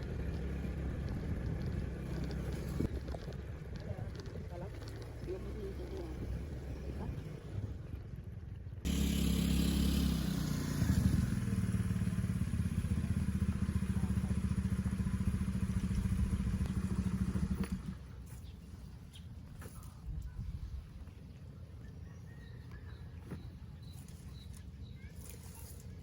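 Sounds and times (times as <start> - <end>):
motorcycle engine running: 0.0 - 18.9.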